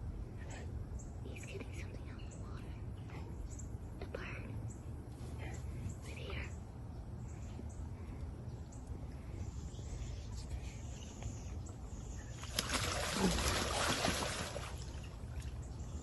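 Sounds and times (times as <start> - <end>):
water splashing: 12.3 - 15.7.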